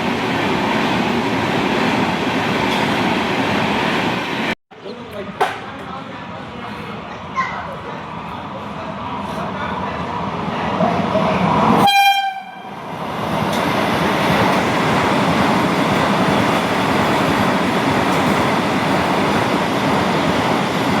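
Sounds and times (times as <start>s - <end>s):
train running past: 0.0s - 21.0s
locomotive horn: 11.8s - 12.8s.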